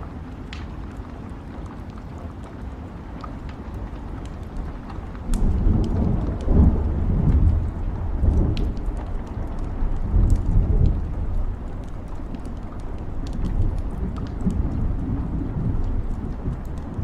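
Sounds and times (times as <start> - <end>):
steady rain: 0.0 - 17.0
thunder rolling: 5.2 - 17.0.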